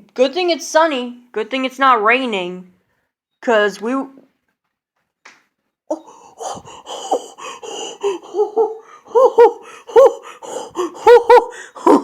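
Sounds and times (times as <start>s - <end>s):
person laughing: 5.9s - 12.0s.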